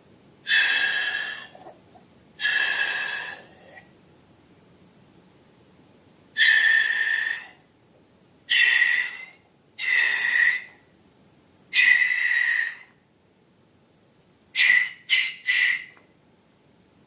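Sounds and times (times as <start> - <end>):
air squealing out of balloon: 0.5 - 1.6, 2.4 - 3.6, 8.5 - 10.7, 11.8 - 12.9.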